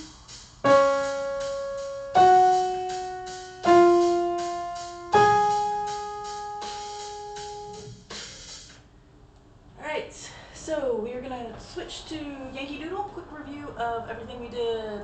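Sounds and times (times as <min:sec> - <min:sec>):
slow piano notes: 0:00.0 - 0:08.2.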